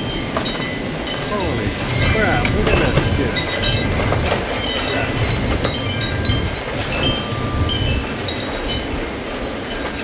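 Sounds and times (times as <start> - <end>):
wind chimes ringing: 0.0 - 10.0
wind gusting against microphone: 0.0 - 10.0.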